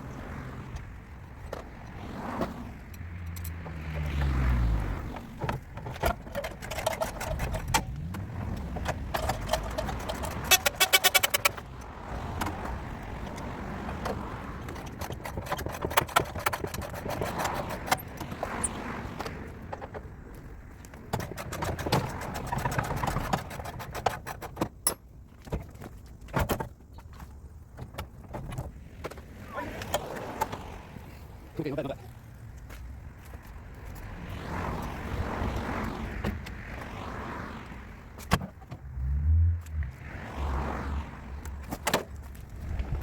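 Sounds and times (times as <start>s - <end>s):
metallic clicks and knocks: 5.4s - 20.1s, 20.8s - 29.2s.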